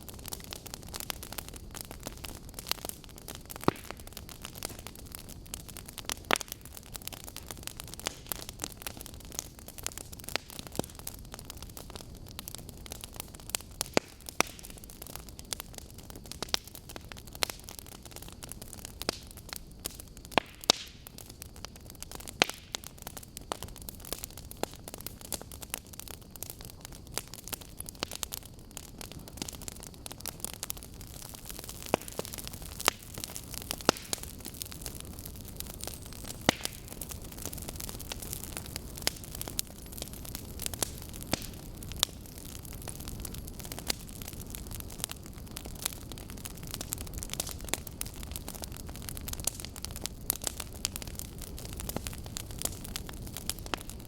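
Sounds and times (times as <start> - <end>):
burning logs crackling: 0.0 - 54.0
hiss of flames: 0.0 - 54.0.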